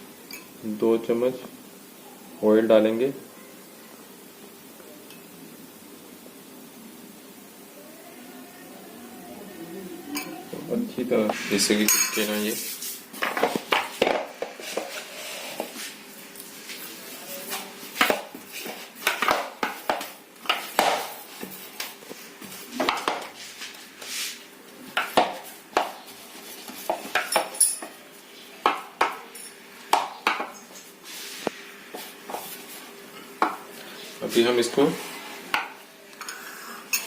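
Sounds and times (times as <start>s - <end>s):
spoon scraping a mixing bowl: 11.3s - 15.9s.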